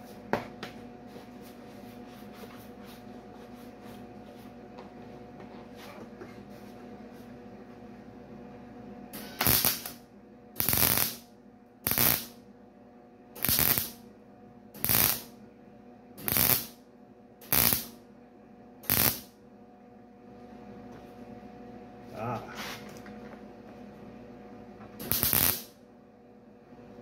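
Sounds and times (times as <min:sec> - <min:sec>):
steady low hum: 0:00.0 - 0:27.0
welder arc bursts: 0:09.1 - 0:10.0, 0:10.6 - 0:12.4, 0:13.4 - 0:14.0, 0:14.8 - 0:15.3, 0:16.2 - 0:16.8, 0:17.4 - 0:18.0, 0:18.8 - 0:19.4, 0:25.0 - 0:25.8.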